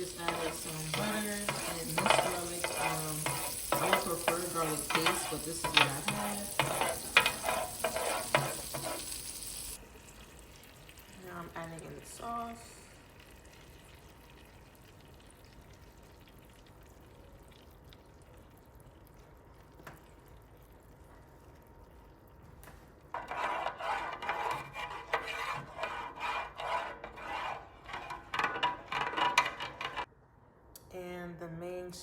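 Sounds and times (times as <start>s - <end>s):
utensil scraping pan: 0.0s - 9.8s, 23.1s - 30.1s.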